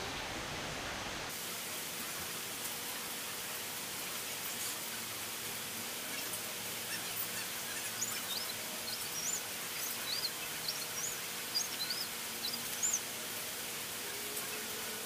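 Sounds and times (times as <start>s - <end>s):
background hiss: 0.0s - 15.0s
small bird chirping: 6.1s - 13.1s.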